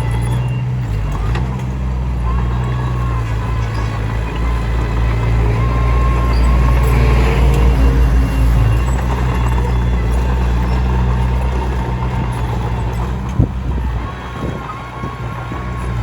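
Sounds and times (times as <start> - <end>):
bulldozer diesel engine: 0.0 - 16.0.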